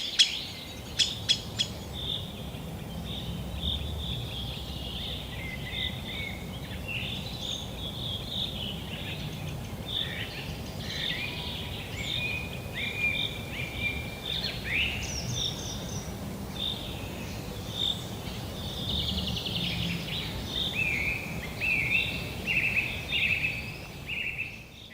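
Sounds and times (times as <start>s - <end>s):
bird chatter: 0.0s - 3.3s.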